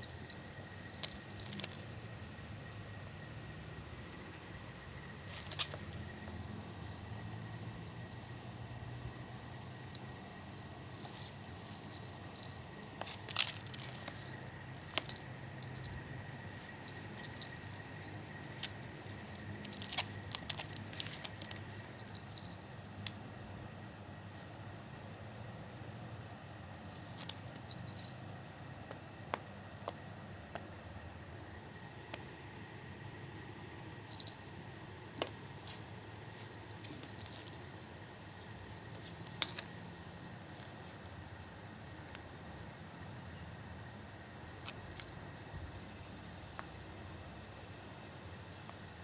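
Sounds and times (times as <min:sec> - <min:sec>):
metallic jingling and clicking: 0:00.0 - 0:02.8, 0:03.9 - 0:09.1, 0:09.8 - 0:25.2, 0:26.0 - 0:28.4, 0:34.1 - 0:40.4, 0:44.6 - 0:46.9
low background hum: 0:00.0 - 0:49.0.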